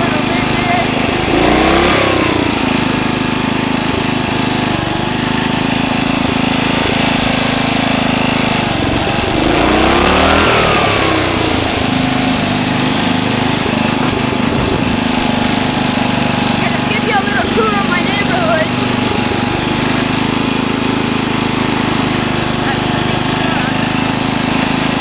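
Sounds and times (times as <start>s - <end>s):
lawn tractor engine running: 0.0s - 25.0s.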